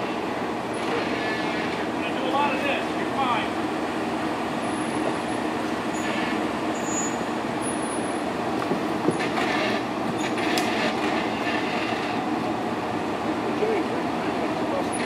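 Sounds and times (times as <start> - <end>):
off-road vehicle engine running: 0.0 - 15.0
sharp knocks: 8.6 - 11.0.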